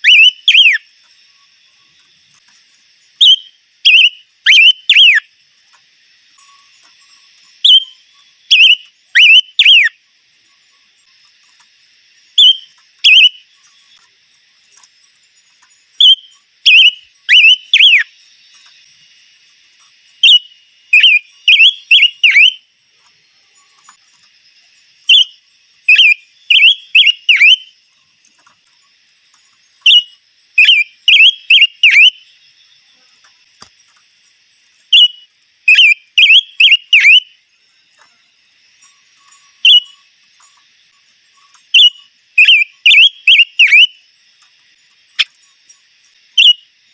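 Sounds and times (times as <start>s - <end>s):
songbird whistling: 0.0s - 0.9s, 3.1s - 5.3s, 6.4s - 10.0s, 12.3s - 14.0s, 15.9s - 18.1s, 20.2s - 22.6s, 25.0s - 27.8s, 29.8s - 32.3s, 34.9s - 37.4s, 39.2s - 40.0s, 41.7s - 44.0s, 46.3s - 46.7s.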